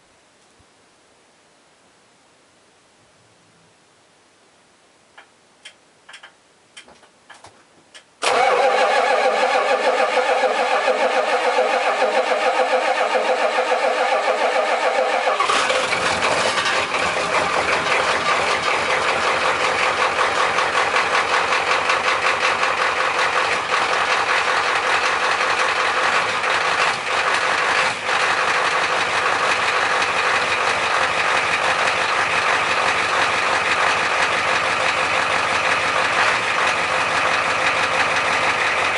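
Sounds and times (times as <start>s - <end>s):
starter motor cranking: 8.2s - 20.2s
diesel engine rough idle: 8.2s - 38.9s.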